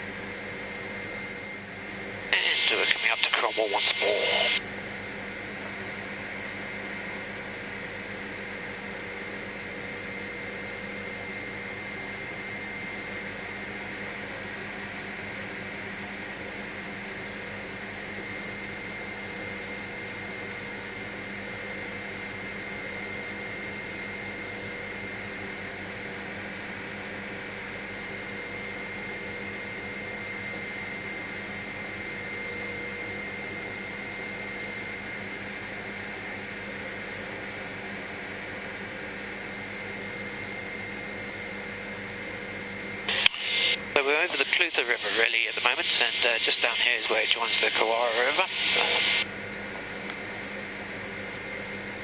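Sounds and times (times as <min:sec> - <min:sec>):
helicopter engine and rotor drone: 0:00.0 - 0:52.0
high whine: 0:02.3 - 0:04.6, 0:43.1 - 0:49.3.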